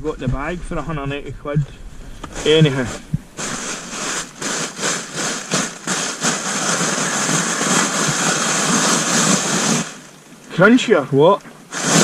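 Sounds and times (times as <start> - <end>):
inflatable mat crinkling: 1.9 - 10.2, 11.7 - 12.0.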